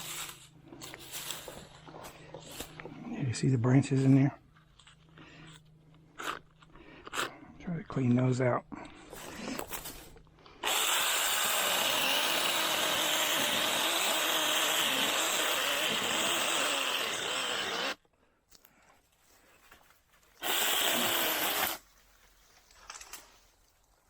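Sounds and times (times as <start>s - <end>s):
mini chainsaw cutting branches: 10.6s - 18.0s, 20.4s - 21.8s.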